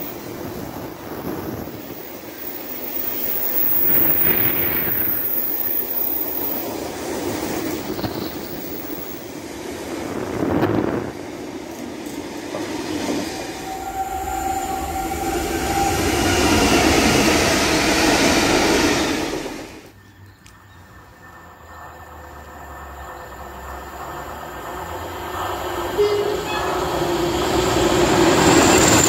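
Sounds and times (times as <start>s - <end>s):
approaching train: 0.0s - 29.0s
freight train rumbling: 0.0s - 29.0s
steady high tones: 13.4s - 19.6s, 25.8s - 29.0s.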